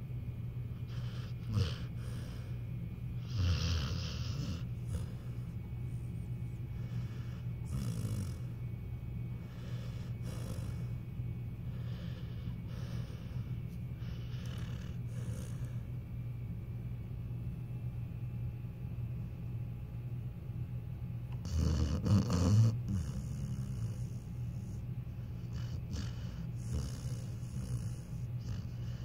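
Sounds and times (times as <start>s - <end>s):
steady low hum: 0.0s - 29.0s
dog snoring: 0.7s - 2.6s, 3.2s - 8.6s, 9.4s - 15.9s, 21.3s - 29.0s.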